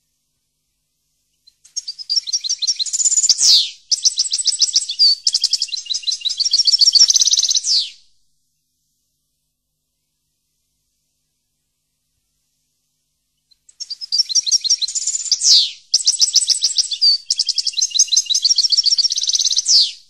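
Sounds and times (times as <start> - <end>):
songbird trilling: 1.6 - 8.0, 13.7 - 20.0.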